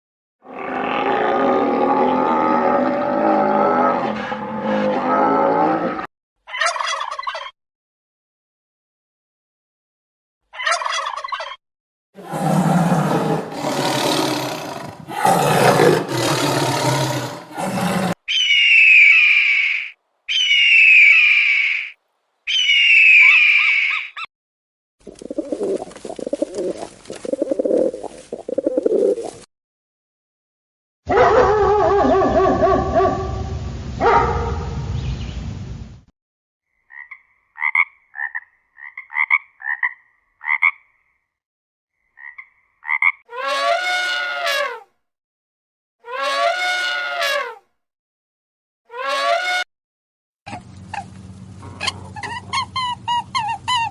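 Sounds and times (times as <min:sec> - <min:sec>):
long noisy animal call: 0:00.4 - 0:06.1, 0:12.2 - 0:24.1
longer pitched animal call: 0:12.2 - 0:24.3
low pulsing animal calls: 0:12.2 - 0:24.3.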